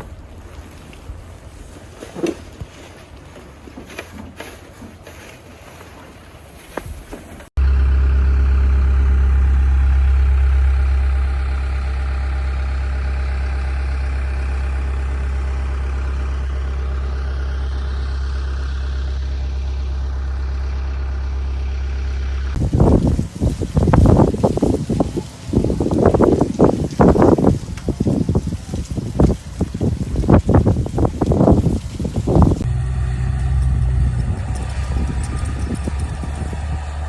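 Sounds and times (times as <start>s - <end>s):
large vehicle engine idling: 7.6s - 37.0s
wind buffeting microphone: 22.5s - 37.0s.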